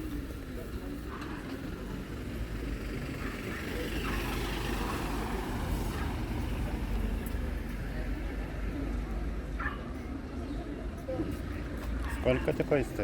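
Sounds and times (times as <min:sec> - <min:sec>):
vehicle engine rumble passing: 0:00.0 - 0:09.6.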